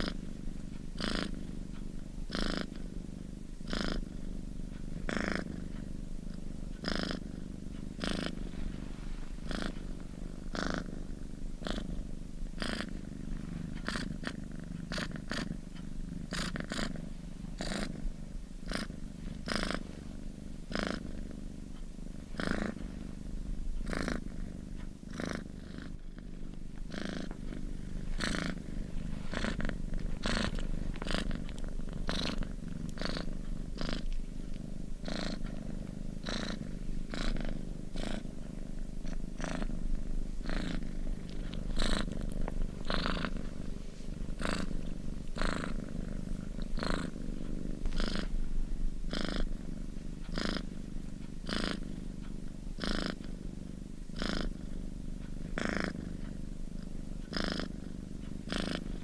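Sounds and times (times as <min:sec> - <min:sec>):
steady low rumble: 0:21.3 - 0:52.8.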